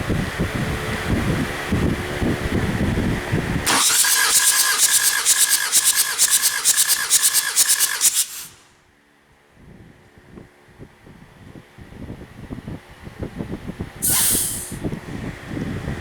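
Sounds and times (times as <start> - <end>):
diesel engine cranking: 3.6 - 8.7, 14.0 - 14.8.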